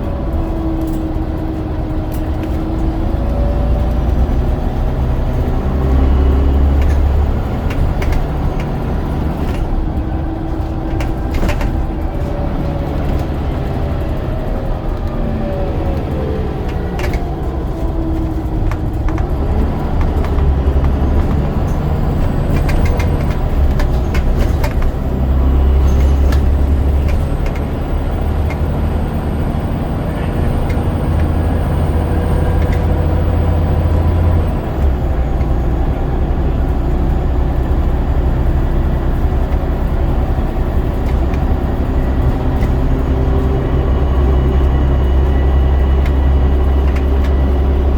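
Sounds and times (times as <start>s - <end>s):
bus diesel engine drone: 0.0s - 47.9s
body rattles and knocks: 1.2s - 15.0s, 16.5s - 35.9s.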